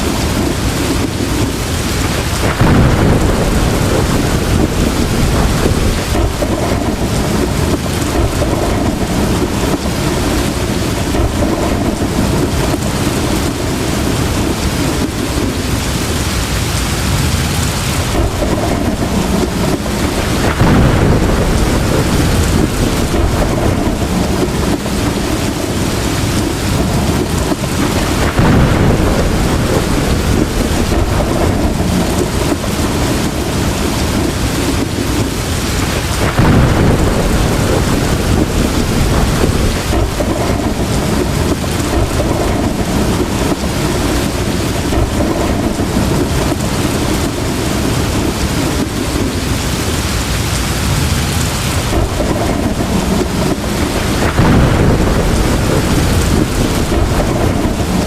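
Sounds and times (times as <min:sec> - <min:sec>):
heavy rain pouring: 0:00.0 - 0:58.0
thunder rumbling: 0:00.0 - 0:58.0.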